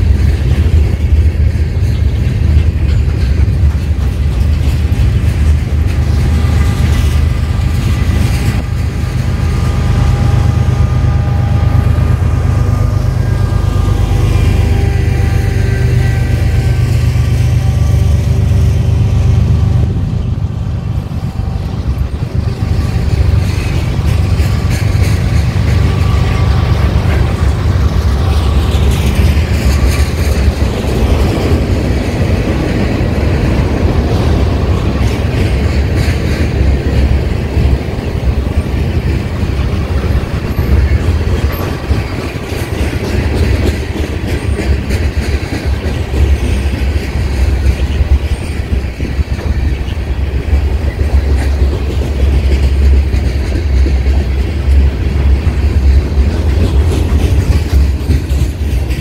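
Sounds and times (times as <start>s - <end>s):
freight train wheels rumbling: 0.0s - 59.0s
wheels clicking over rail joints: 0.0s - 59.0s.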